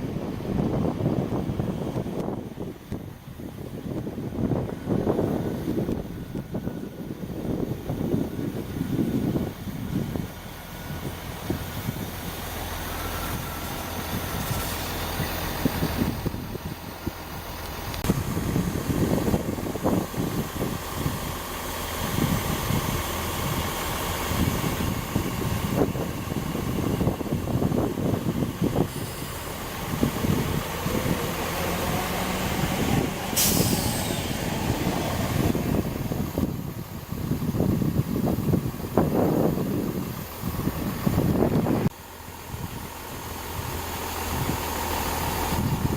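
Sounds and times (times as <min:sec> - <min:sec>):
wind buffeting microphone: 0:00.0 - 0:45.9
train rushing past: 0:10.1 - 0:36.6
air brakes hissing: 0:28.7 - 0:36.5.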